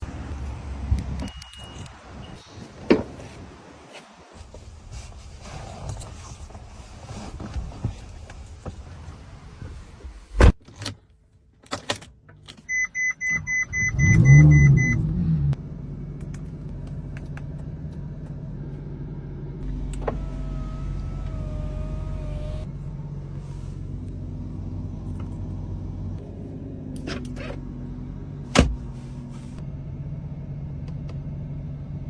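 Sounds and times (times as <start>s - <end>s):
car engine starting and idling: 11.8s - 32.0s
quick beeps: 12.7s - 15.0s.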